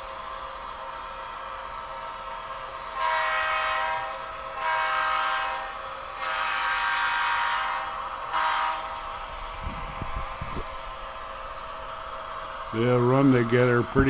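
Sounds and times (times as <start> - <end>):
locomotive horn through speaker: 3.0 - 9.0.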